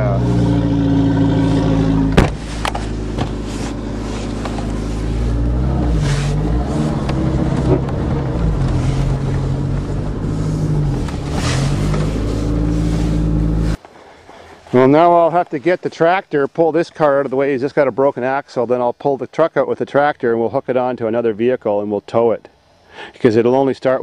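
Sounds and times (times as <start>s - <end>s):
car engine revving: 0.0s - 13.8s.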